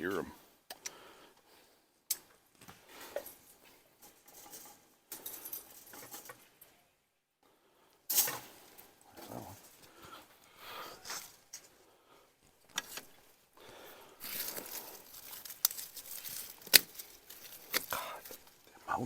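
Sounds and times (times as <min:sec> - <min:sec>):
dog grunting: 0:09.1 - 0:09.6
rustling scuffs on ground: 0:14.2 - 0:18.5.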